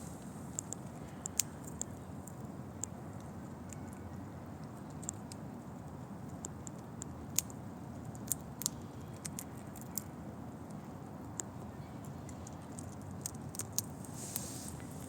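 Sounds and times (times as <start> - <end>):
squirrel cracking nut shells: 0.5 - 14.0.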